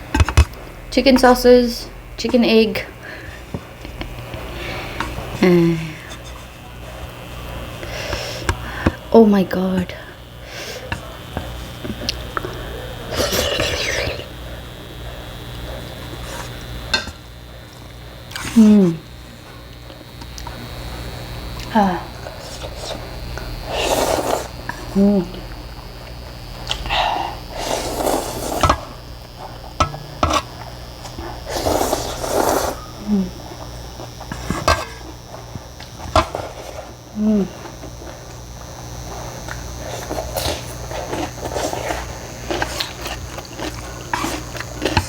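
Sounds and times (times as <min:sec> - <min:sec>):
noisy slurping of noodles: 0:13.1 - 0:14.4, 0:22.3 - 0:24.8, 0:27.5 - 0:29.0, 0:31.2 - 0:33.0, 0:39.8 - 0:45.0
loud slurp of noodles: 0:23.7 - 0:24.5, 0:27.6 - 0:28.8, 0:31.5 - 0:32.8.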